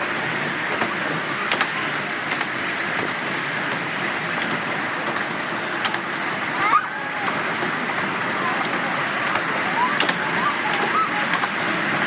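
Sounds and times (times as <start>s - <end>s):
miniature train wheels rolling on rails: 0.0s - 12.0s
wheels clicking over rail joints: 0.0s - 12.0s.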